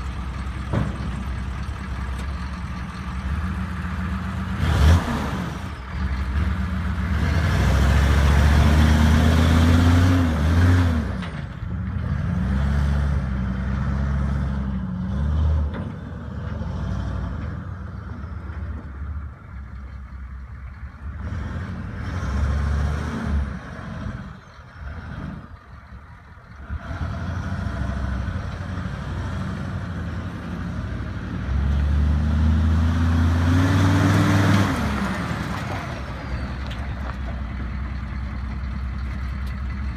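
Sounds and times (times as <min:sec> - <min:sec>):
pickup truck engine revving: 0:03.3 - 0:11.2, 0:26.6 - 0:37.1.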